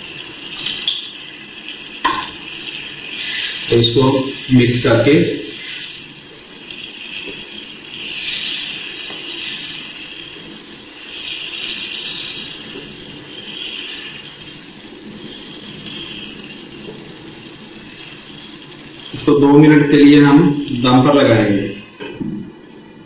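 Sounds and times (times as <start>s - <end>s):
chicken sizzling in frying pan: 0.0s - 22.0s
wooden spatula stirring and scraping: 1.6s - 21.1s.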